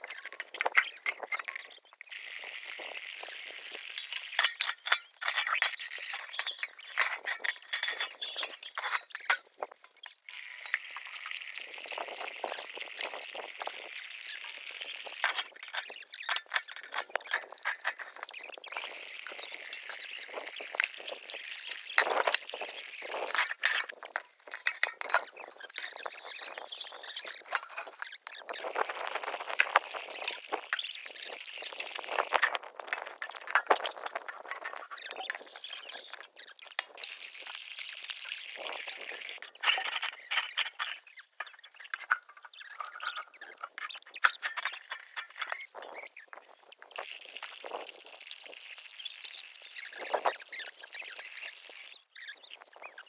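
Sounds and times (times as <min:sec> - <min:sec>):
scrubbing metal pots: 0:02.9 - 0:10.0, 0:15.1 - 0:37.2, 0:38.6 - 0:46.9.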